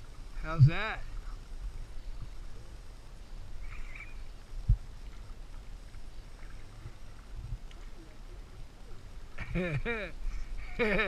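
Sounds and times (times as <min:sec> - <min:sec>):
low rumble of water: 0:00.0 - 0:11.0.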